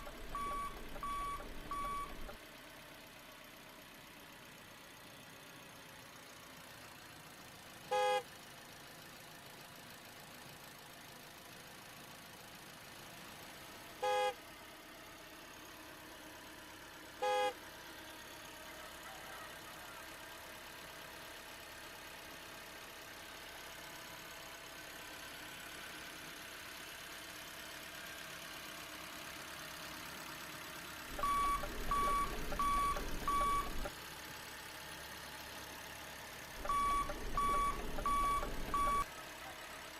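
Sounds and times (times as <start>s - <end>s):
high reversing beeps: 0.0s - 2.4s, 31.1s - 33.9s, 36.6s - 39.0s
model vehicle horn tooting: 7.9s - 8.3s, 14.0s - 14.4s, 17.2s - 17.6s, 36.6s - 39.0s.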